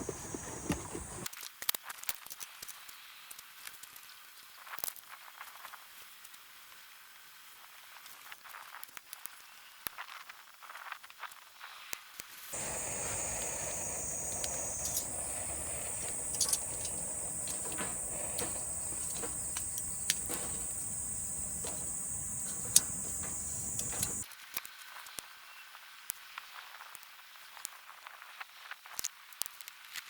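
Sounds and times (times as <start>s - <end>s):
cicadas buzzing: 0.0s - 1.2s, 12.6s - 24.2s
faint ticks and clicks: 12.6s - 24.2s
sharp clicks: 12.6s - 24.2s
wind rumble on microphone: 12.6s - 24.2s.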